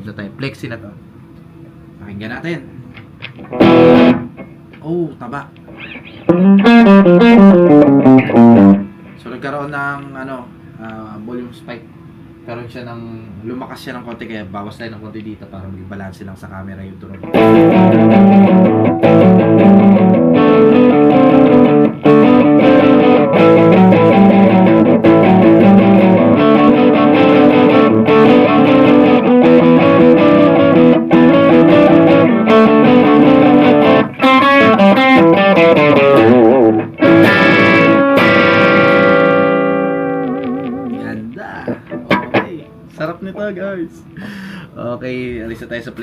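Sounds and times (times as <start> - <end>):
overdriven electric guitar: 3.0 - 4.8, 5.6 - 9.2, 17.2 - 42.9.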